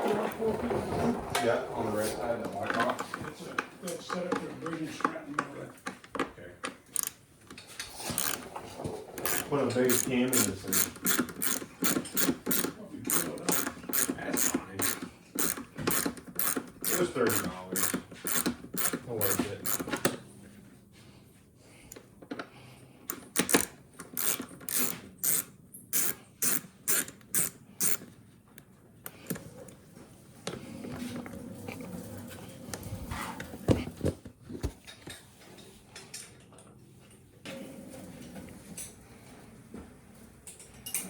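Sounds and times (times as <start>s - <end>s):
tools clattering: 6.8s - 20.1s
ratchet wrench clicking: 8.1s - 8.4s, 9.2s - 20.0s, 23.1s - 28.0s.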